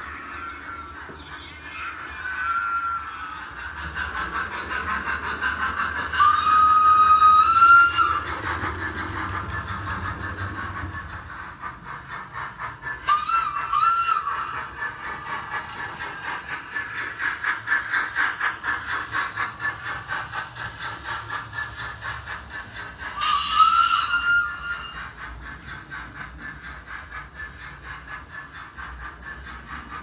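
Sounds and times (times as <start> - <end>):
model steam locomotive chuffing: 0.0 - 30.0
long rising whistle: 6.1 - 8.4.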